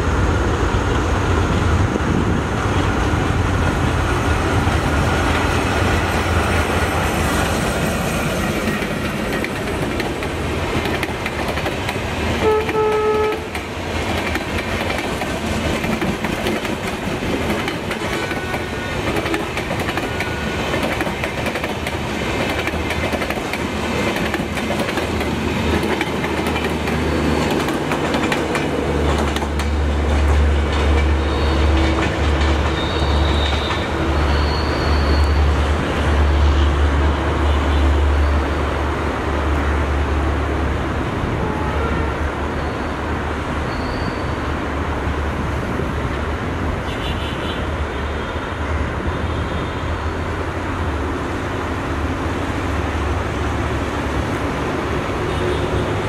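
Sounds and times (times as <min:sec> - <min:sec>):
train wheels rumbling on rail: 0:00.0 - 0:56.0
clickety-clack over rail joints: 0:00.5 - 0:37.9
train horn note: 0:12.4 - 0:13.5, 0:41.4 - 0:42.3.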